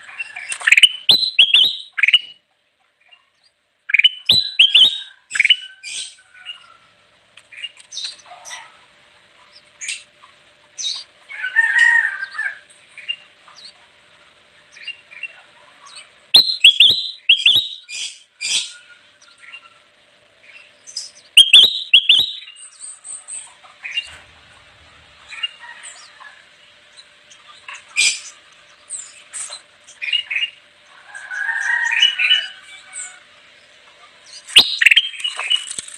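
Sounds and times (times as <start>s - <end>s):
bulbul singing and chirping: 0.4s - 2.4s, 3.1s - 6.7s, 10.8s - 11.1s, 12.2s - 13.8s, 14.6s - 19.7s, 20.4s - 24.2s, 26.8s - 30.6s, 33.0s - 35.7s.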